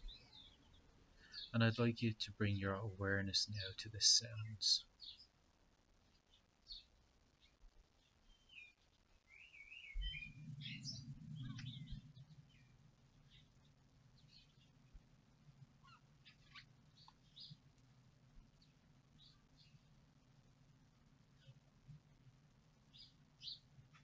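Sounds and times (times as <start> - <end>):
birds chirping: 0.0 - 5.3, 9.3 - 13.5
low hum: 10.2 - 12.9.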